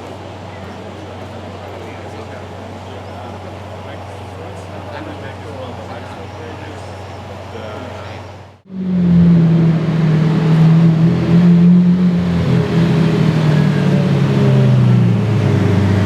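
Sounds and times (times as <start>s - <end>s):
sports car engine running: 8.6s - 16.0s.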